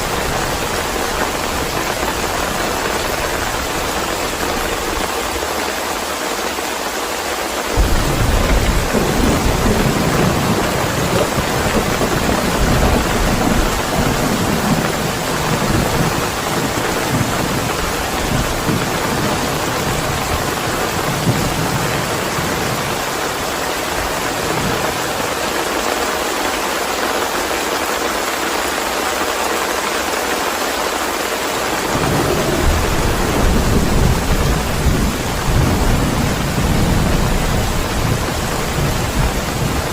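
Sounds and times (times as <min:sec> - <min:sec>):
steady rain: 0:00.0 - 0:39.9
thunder rumbling: 0:07.7 - 0:25.4, 0:31.8 - 0:39.9.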